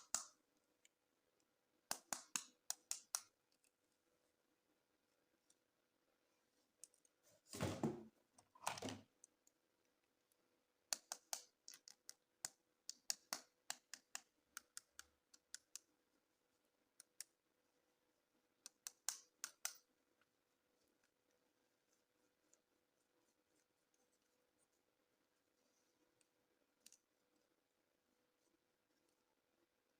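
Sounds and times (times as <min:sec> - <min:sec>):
plastic scuffing: 0:07.4 - 0:08.1.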